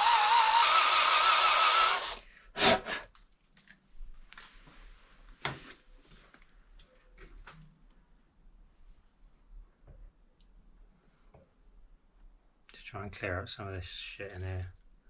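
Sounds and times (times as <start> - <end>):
electric drill whining: 0.0 - 2.2.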